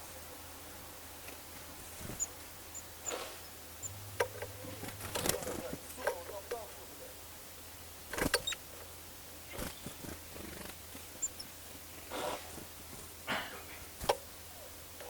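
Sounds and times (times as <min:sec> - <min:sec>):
high bird chip: 0:03.0 - 0:06.5.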